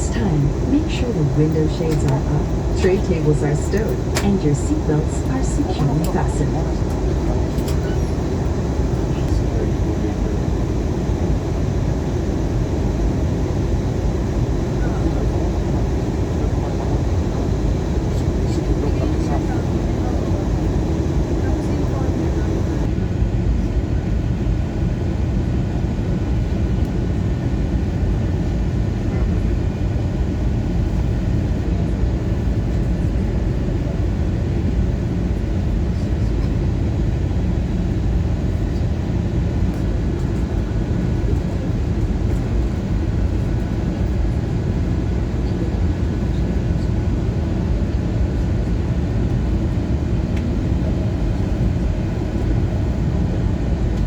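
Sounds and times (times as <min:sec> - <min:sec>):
faint steady tones: 0:00.0 - 0:22.9
airliner cabin rumble: 0:00.0 - 0:54.0.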